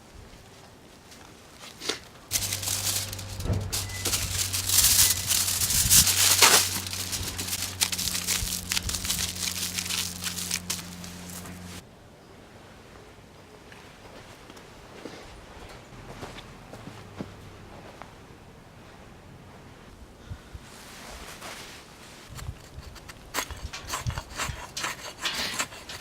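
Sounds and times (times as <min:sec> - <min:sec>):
steady low hum: 0:02.3 - 0:11.8
wrapping material crinkling: 0:02.3 - 0:11.8.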